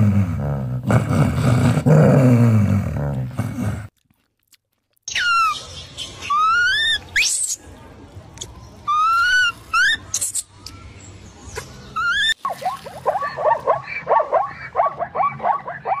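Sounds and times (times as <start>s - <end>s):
monkey high rising calls: 6.2s - 7.0s.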